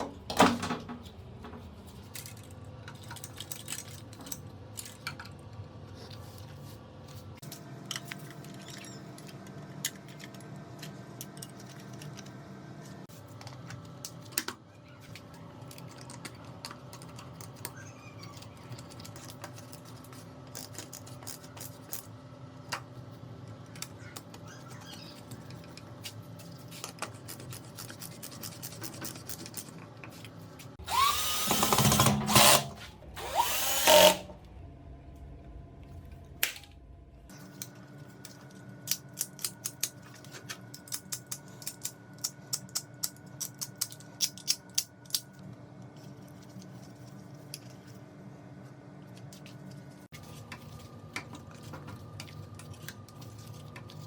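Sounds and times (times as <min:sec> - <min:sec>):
steady low hum: 0:25.4 - 0:54.0
small power drill whirring: 0:30.8 - 0:34.4.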